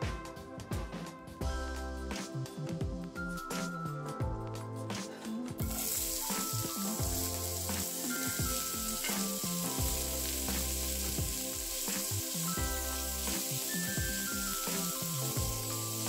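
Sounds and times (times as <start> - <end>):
background music: 0.0 - 16.0
vegetables sizzling in oil: 5.6 - 16.0.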